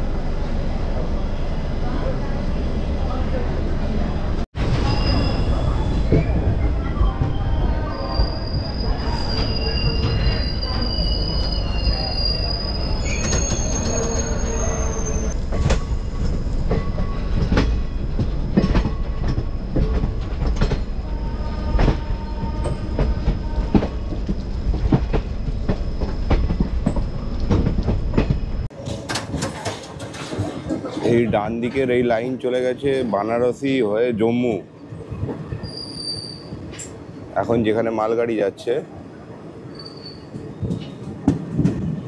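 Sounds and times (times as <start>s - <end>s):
train rumbling on rails: 0.0s - 42.0s
high-pitched wheel squeal: 4.8s - 6.4s, 7.2s - 15.4s, 35.6s - 36.6s, 39.7s - 40.4s.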